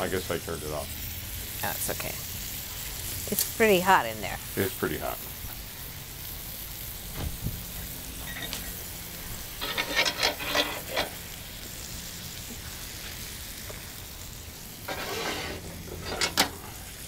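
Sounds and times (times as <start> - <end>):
patties sizzling on hot plate: 0.0 - 17.0
plate scraping clatter: 9.6 - 11.2, 14.9 - 16.7.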